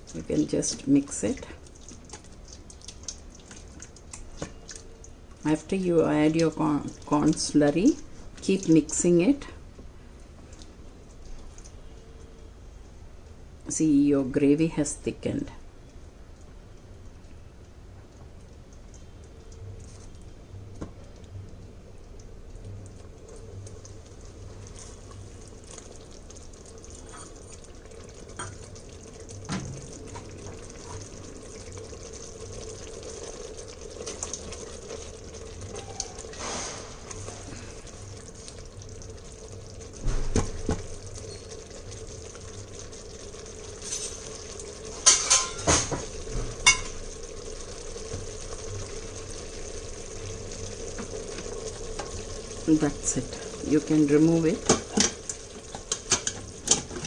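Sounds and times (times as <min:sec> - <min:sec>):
spoon knocking metal pot: 0:45.1 - 0:45.7.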